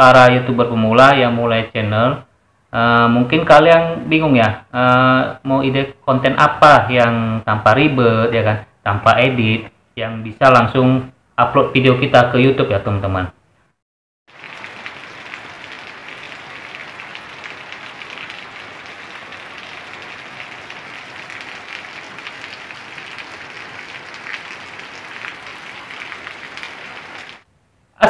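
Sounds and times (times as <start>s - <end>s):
steady rain falling: 14.3s - 27.5s.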